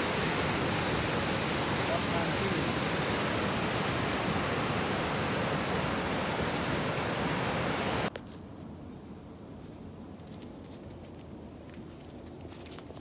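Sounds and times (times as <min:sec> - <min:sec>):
rushing water: 0:00.0 - 0:08.1.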